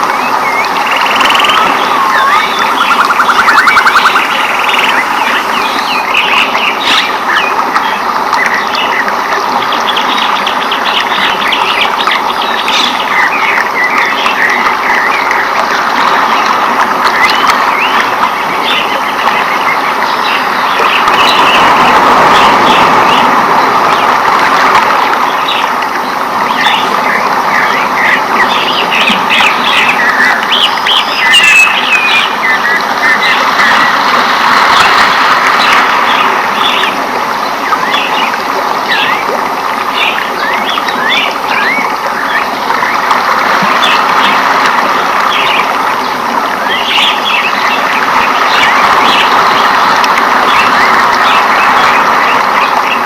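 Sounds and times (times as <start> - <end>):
steady rushing background noise: 0.0 - 53.0
birds chirping and calling: 0.3 - 9.1, 9.8 - 15.4, 26.5 - 33.9.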